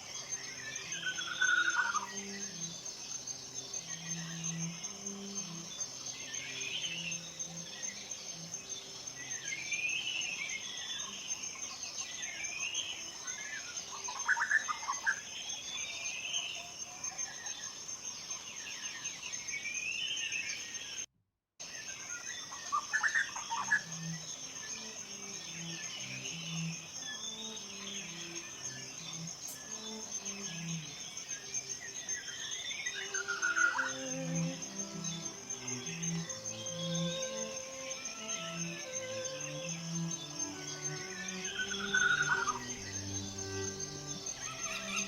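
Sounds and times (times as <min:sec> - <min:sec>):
insect trill: 0:00.0 - 0:45.0
small birds singing: 0:00.0 - 0:45.0
loud bird calls: 0:22.4 - 0:45.0.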